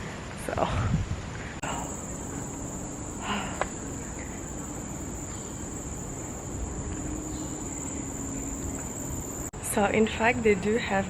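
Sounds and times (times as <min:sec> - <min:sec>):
insects droning: 0:01.6 - 0:09.6.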